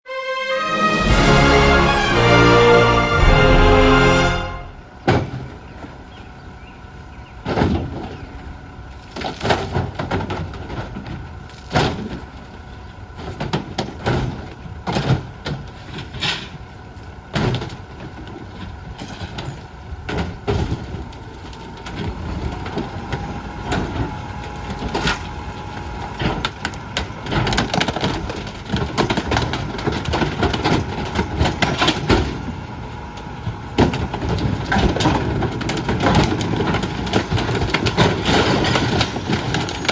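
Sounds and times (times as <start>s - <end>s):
garbage truck running: 0.1s - 39.9s
trash cracking and breaking: 26.0s - 32.5s, 33.8s - 39.9s.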